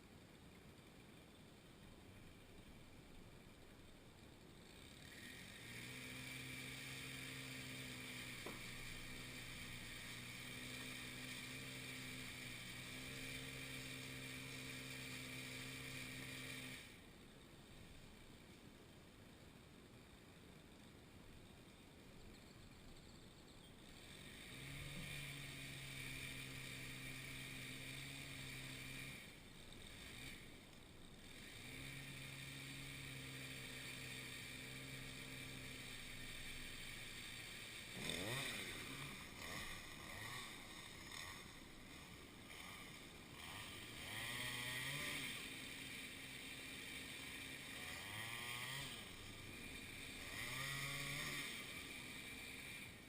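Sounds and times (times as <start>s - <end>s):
chainsaw revving: 4.2s - 17.2s, 23.8s - 53.0s.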